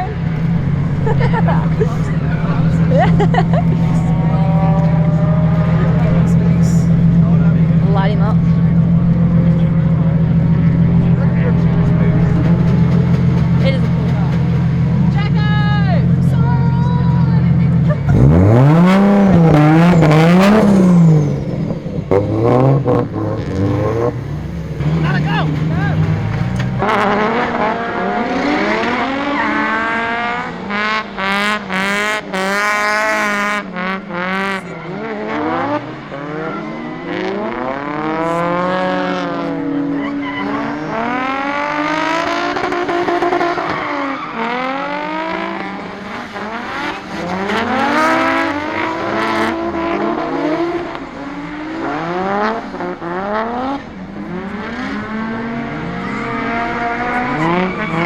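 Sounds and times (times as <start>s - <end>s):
car engines revving: 0.0s - 58.0s
tyres squealing: 16.5s - 26.8s, 39.5s - 45.0s, 55.9s - 58.0s.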